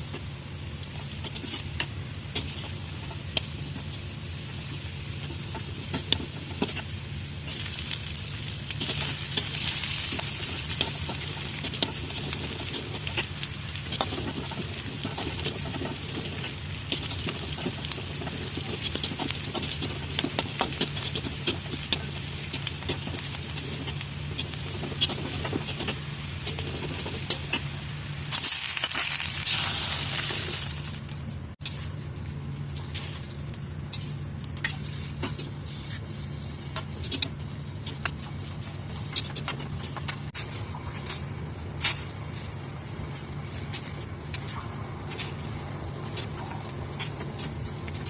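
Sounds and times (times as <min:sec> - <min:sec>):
food sizzling in a pan: 0:00.0 - 0:31.0
low steady hum: 0:00.0 - 0:48.0.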